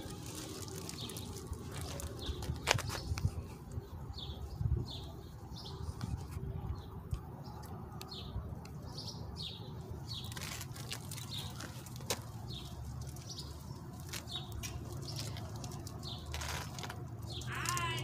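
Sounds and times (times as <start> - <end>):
songbirds chirping: 0.0 - 18.0
wind rumble on microphone: 1.8 - 7.3.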